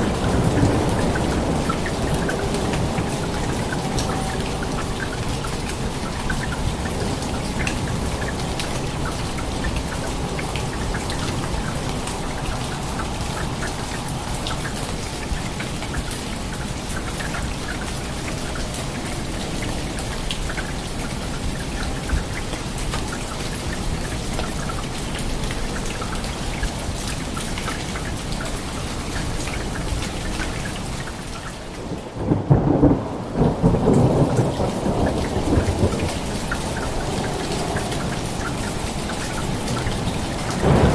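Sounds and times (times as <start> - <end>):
rumble of thunder: 0.0 - 9.7, 31.8 - 40.9
steady rain: 0.0 - 40.9.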